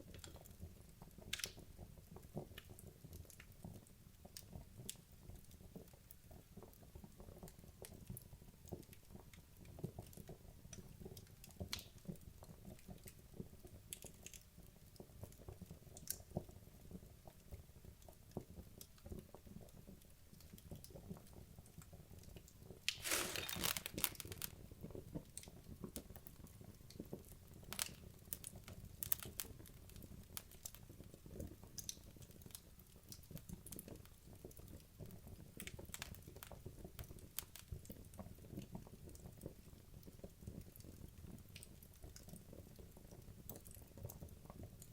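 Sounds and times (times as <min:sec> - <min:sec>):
burning logs crackling: 0:22.9 - 0:24.6.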